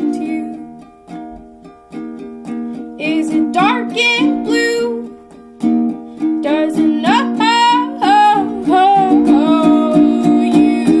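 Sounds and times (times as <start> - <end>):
person singing: 0.0 - 0.8, 3.0 - 5.2, 6.4 - 11.0
ukulele strumming: 0.0 - 11.0.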